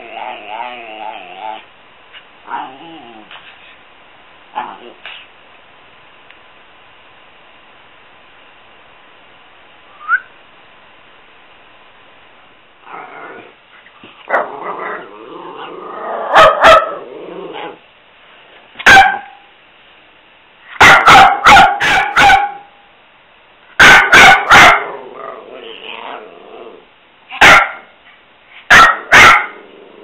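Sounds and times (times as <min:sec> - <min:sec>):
dog growling: 0:00.0 - 0:01.7, 0:02.5 - 0:03.4, 0:04.6 - 0:05.1, 0:12.8 - 0:13.6, 0:14.2 - 0:17.8, 0:24.8 - 0:26.9, 0:29.4 - 0:30.0
dog barking: 0:16.3 - 0:17.0, 0:18.8 - 0:19.5, 0:20.7 - 0:22.8, 0:23.8 - 0:24.9, 0:27.3 - 0:27.9, 0:28.7 - 0:29.6.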